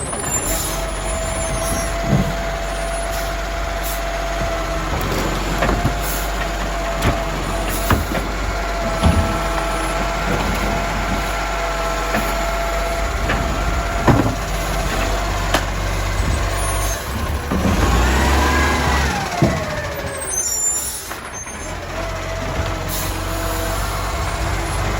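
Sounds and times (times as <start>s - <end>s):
garbage truck engine whining: 0.0s - 24.9s
sharp knocks and bangs: 4.3s - 20.3s.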